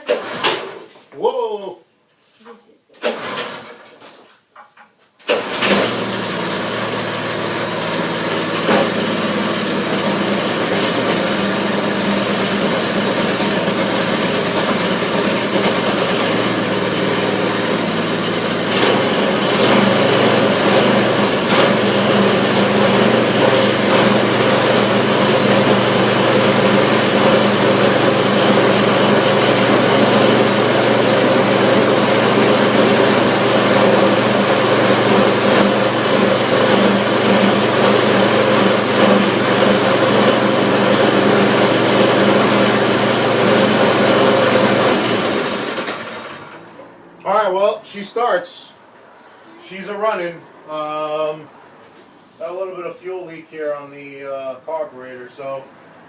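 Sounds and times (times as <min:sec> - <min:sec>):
small engine running: 0:05.3 - 0:46.8.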